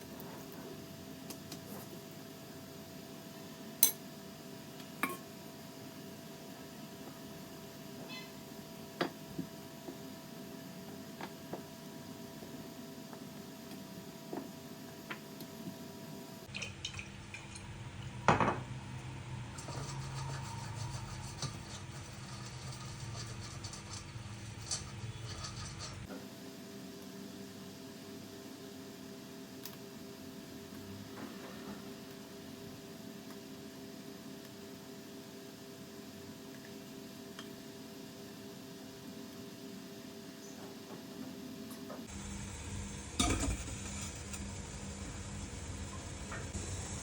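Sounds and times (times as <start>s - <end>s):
kitchenware clinking: 5.0s - 5.3s.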